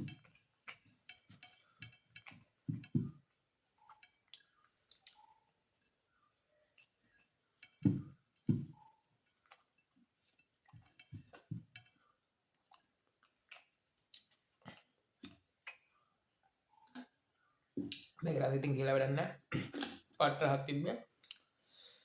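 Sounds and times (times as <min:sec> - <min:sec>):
person chewing food: 0:00.0 - 0:18.2, 0:21.2 - 0:21.6
wet mouth smacks: 0:04.8 - 0:05.3.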